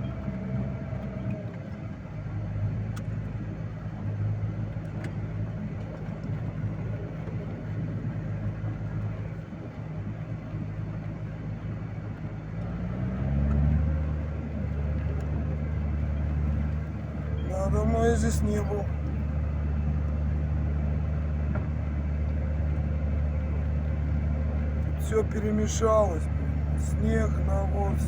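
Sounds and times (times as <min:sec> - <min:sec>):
vehicle engine running and revving: 0:00.0 - 0:28.0.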